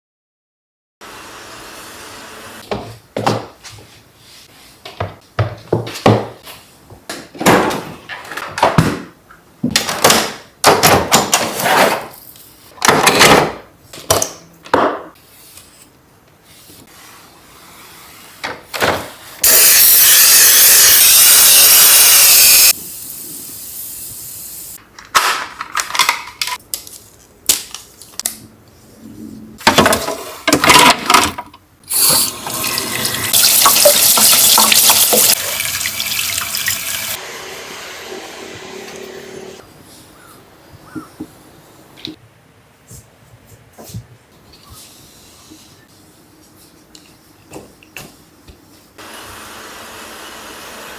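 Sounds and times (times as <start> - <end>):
loud steady hiss: 19.5 - 24.8
knocks clatters and rustles: 29.6 - 31.6.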